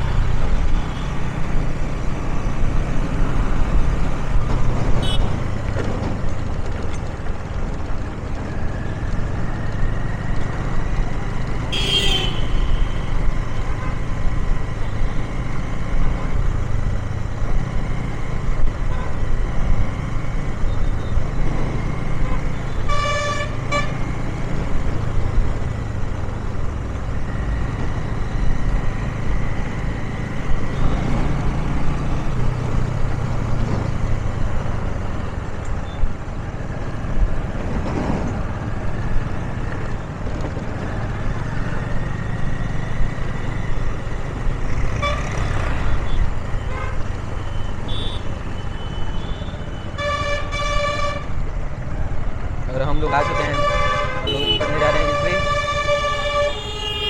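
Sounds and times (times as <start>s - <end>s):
motorcycle engine rumble: 0.0s - 22.9s
road noise: 0.0s - 57.0s
vehicle horn toots: 11.7s - 13.1s, 53.1s - 57.0s.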